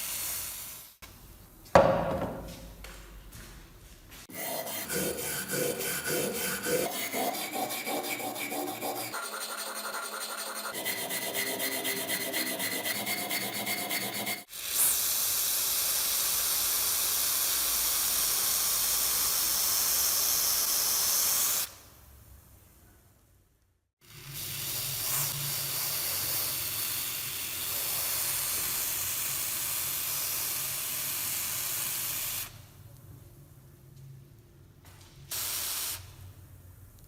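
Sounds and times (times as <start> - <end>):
metal-on-metal scraping strokes: 4.3 - 14.5.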